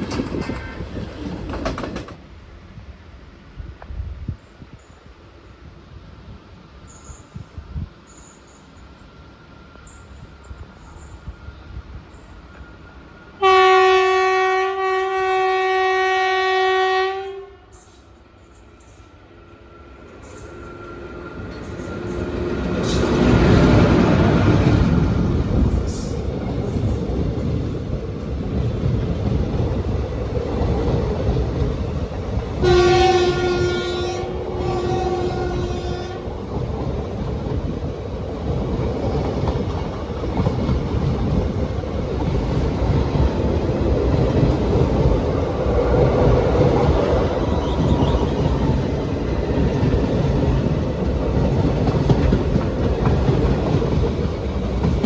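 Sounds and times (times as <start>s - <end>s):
train wheels clattering on rails: 0.0s - 2.4s, 17.8s - 33.8s, 36.3s - 55.0s
train horn blasts: 13.4s - 18.0s, 32.6s - 36.4s.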